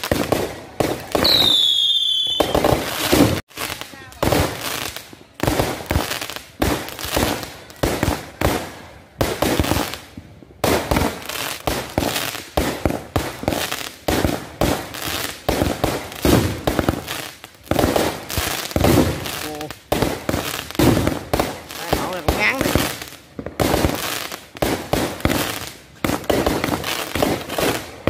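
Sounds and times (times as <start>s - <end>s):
fireworks bangs and pops: 0.0s - 28.0s.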